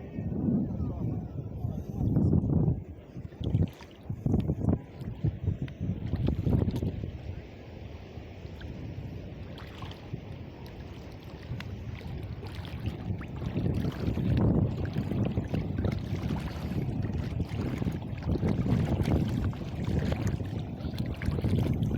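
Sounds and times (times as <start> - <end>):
wind buffeting microphone: 0.0 - 21.9
water splashing: 3.2 - 4.1, 8.4 - 21.9.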